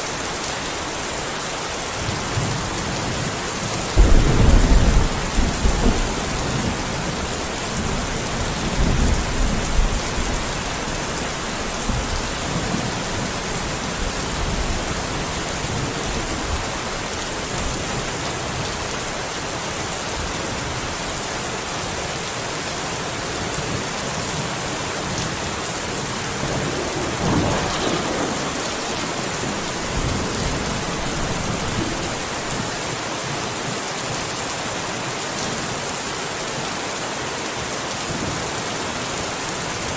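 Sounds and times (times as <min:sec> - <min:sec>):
steady rain: 0:00.0 - 0:39.9
rolling thunder: 0:03.9 - 0:18.7, 0:25.0 - 0:33.0.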